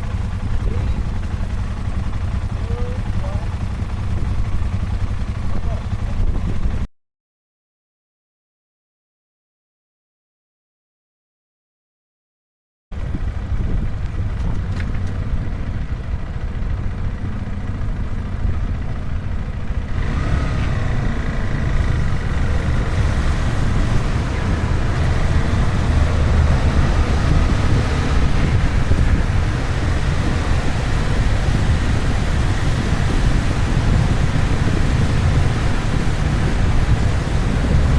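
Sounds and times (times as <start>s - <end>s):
motorcycle engine rumble: 0.0s - 6.9s, 13.0s - 37.9s
wind buffeting microphone: 4.0s - 6.9s, 13.0s - 37.9s.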